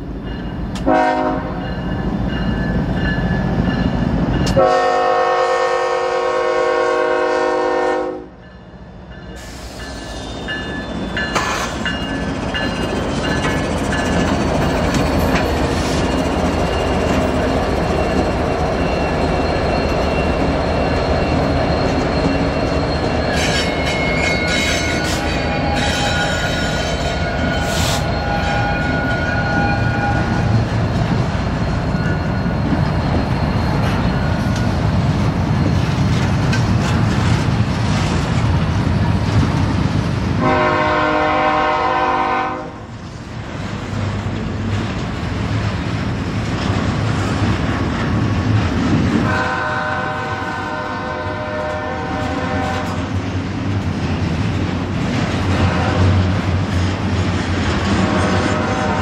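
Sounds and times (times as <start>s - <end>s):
diesel locomotive rumble: 0.0s - 59.0s
train air horn: 0.8s - 1.7s, 4.6s - 8.4s, 40.4s - 42.9s, 49.2s - 53.1s, 55.5s - 56.2s, 57.9s - 59.0s
steel wheels clacking and squealing: 8.5s - 39.6s.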